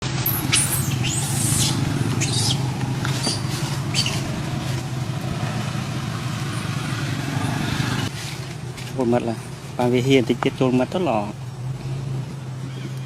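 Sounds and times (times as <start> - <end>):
baby monkey squeaking: 0.2 - 4.3.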